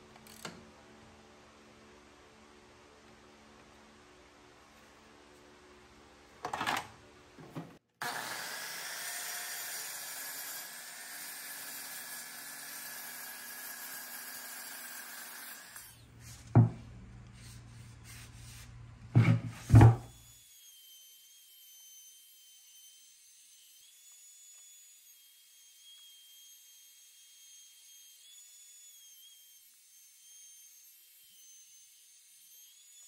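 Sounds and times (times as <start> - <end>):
miter saw cutting wood: 8.0 - 16.1.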